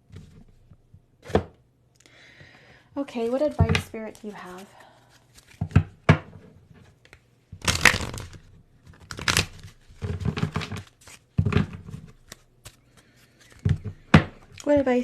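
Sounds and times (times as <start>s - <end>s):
cards being shuffled: 3.2s - 5.9s, 6.9s - 15.0s.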